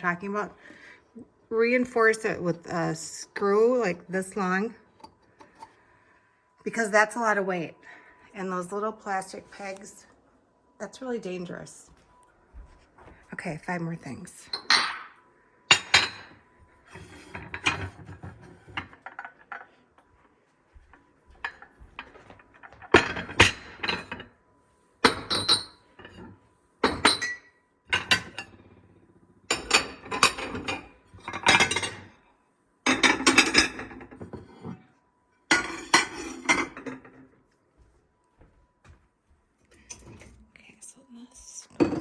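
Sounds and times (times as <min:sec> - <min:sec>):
dishes clinking together: 0:14.5 - 0:16.4.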